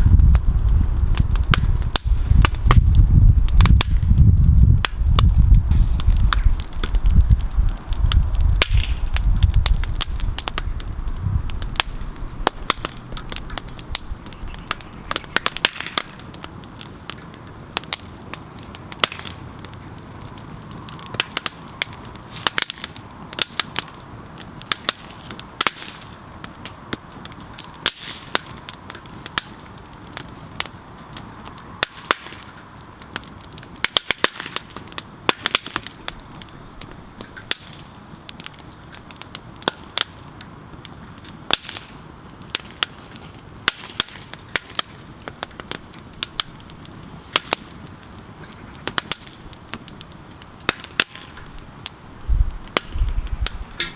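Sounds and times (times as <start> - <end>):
low rumble: 0.0 - 14.6
campfire crackling: 0.0 - 53.9.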